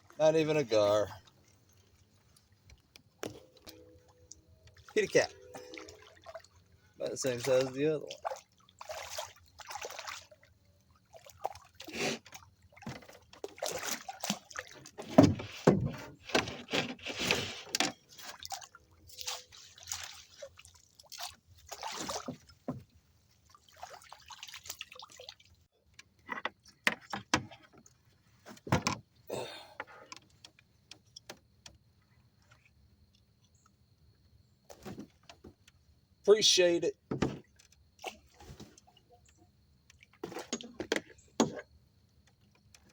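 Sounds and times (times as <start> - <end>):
water splashing and sloshing: 0.0 - 42.9
knocks and rustles: 14.7 - 18.1, 37.1 - 37.8.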